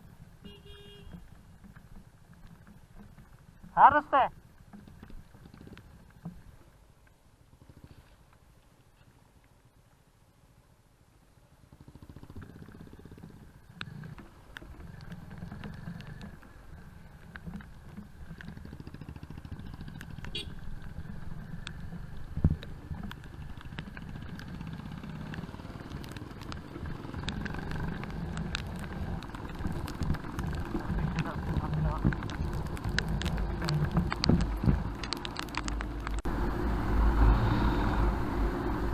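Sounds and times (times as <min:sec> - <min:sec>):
motorcycle engine running: 0:11.5 - 0:36.9.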